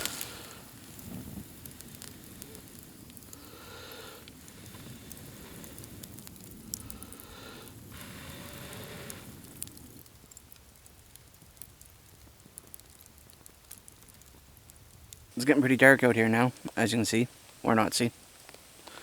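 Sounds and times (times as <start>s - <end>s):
steak sizzling: 0.0s - 14.8s
campfire crackling and popping: 0.0s - 19.0s.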